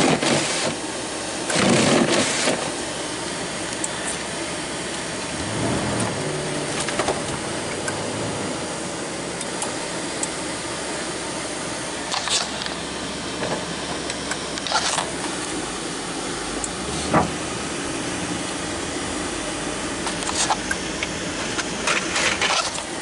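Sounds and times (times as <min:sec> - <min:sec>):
truck engine humming: 0:03.4 - 0:14.1, 0:15.0 - 0:22.3.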